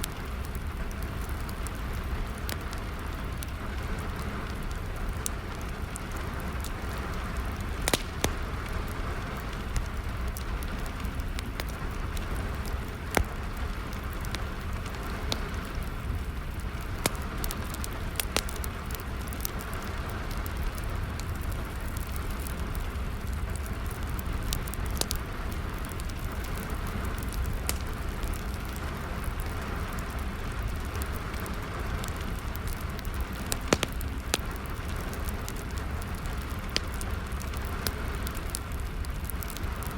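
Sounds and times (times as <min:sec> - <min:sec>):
rain pattering: 0:00.0 - 0:39.9
wood fire crackling and popping: 0:00.0 - 0:39.9.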